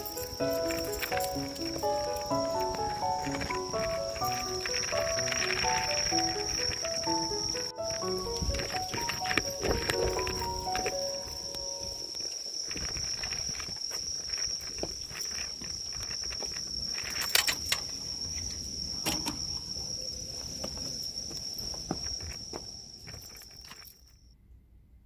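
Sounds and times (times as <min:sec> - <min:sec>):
footsteps: 0:00.0 - 0:17.2, 0:20.2 - 0:24.0
cricket trilling: 0:00.0 - 0:24.4.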